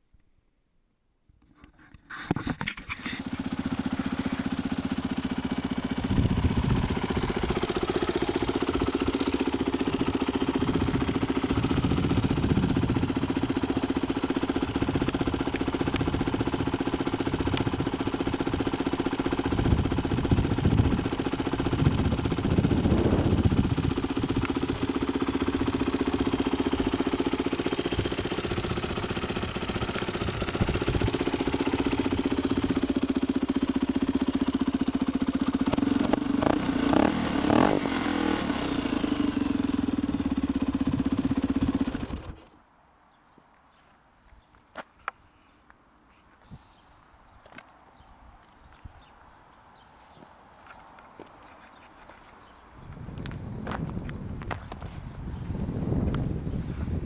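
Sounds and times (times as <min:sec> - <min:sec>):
motorcycle engine starting and idling: 0:02.2 - 0:42.6.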